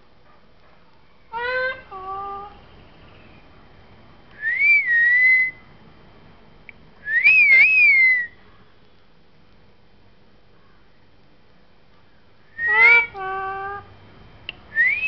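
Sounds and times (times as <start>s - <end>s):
parrot whistling: 4.4s - 5.6s, 7.0s - 8.4s, 12.6s - 13.5s, 14.8s - 15.0s.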